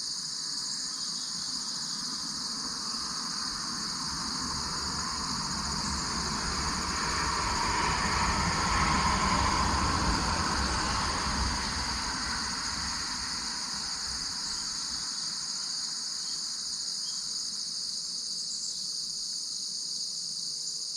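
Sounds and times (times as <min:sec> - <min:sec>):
insects chorus: 0:00.0 - 0:20.9
passing vehicle rumble: 0:03.6 - 0:14.9.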